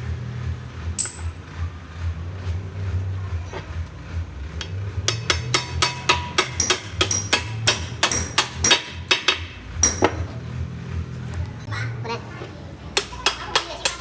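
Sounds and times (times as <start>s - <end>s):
hammer blows on metal: 4.6s - 10.3s.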